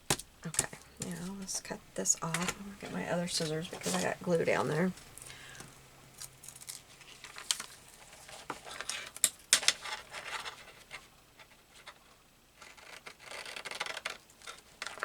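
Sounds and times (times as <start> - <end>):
paper rustling: 3.3 - 4.2, 6.4 - 12.8.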